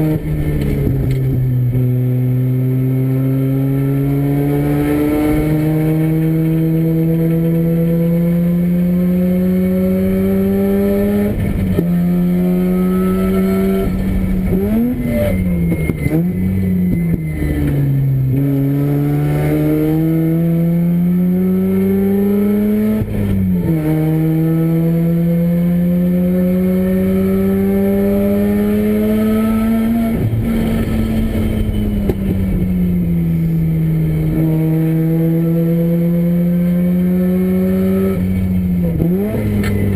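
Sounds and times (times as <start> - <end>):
race car rotary engine revving: 0.0 - 39.9.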